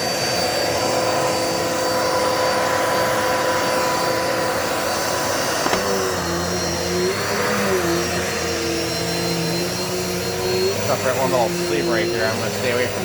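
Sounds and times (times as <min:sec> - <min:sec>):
vacuum cleaner humming: 0:00.0 - 0:13.0
vacuum cleaner switch click: 0:05.6 - 0:06.2.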